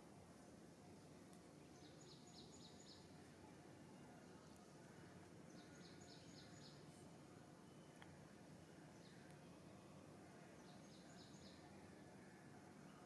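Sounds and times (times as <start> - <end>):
faint outdoor hiss: 0.0 - 13.0
small bird chirping: 1.6 - 3.2, 5.5 - 7.0, 10.6 - 11.7.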